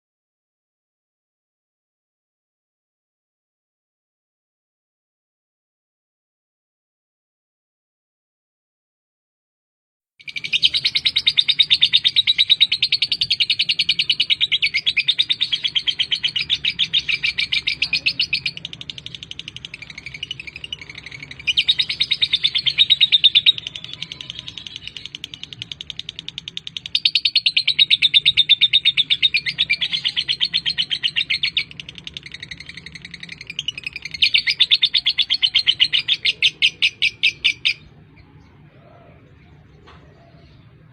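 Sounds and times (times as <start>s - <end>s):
lovebird chattering: 10.2s - 37.9s.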